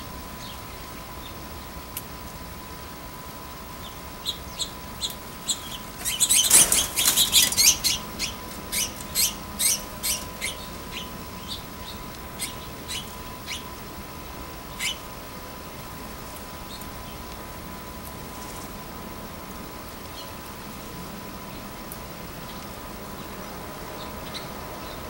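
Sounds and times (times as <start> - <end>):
faint steady whine: 0.0 - 25.0
small songbird chirping: 0.3 - 1.8, 3.7 - 15.1, 16.6 - 17.4, 20.0 - 20.4, 22.4 - 25.0.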